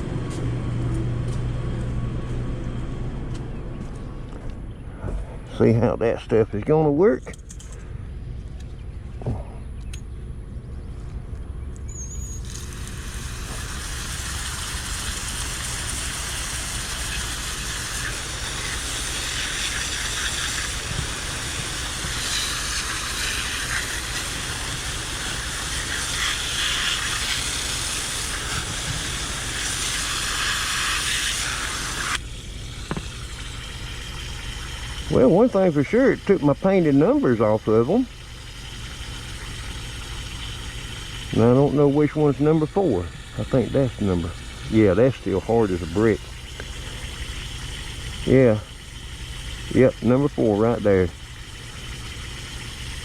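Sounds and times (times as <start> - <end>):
running water hissing: 12.0 - 53.0.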